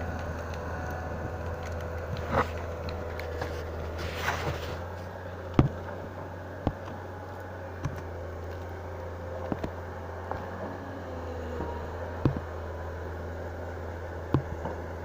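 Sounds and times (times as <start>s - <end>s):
steady low hum: 0.0s - 15.0s
sharp knocks: 12.2s - 12.6s, 14.3s - 14.8s.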